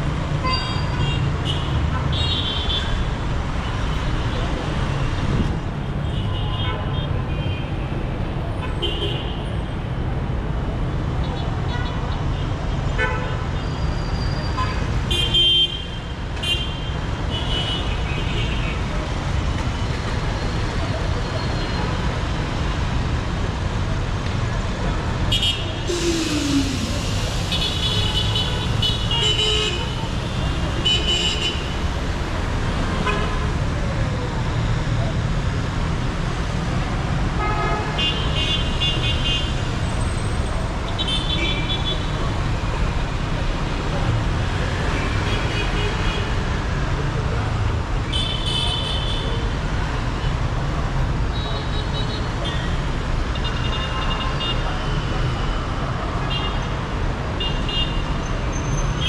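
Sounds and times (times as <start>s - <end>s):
city traffic rumbling: 0.0s - 59.0s
vehicle horns honking: 25.3s - 31.8s.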